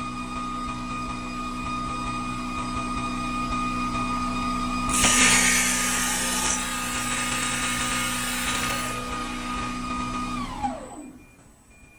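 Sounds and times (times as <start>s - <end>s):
lathe spindle whine: 0.0s - 11.7s
cutter scraping spinning wood: 4.9s - 9.3s.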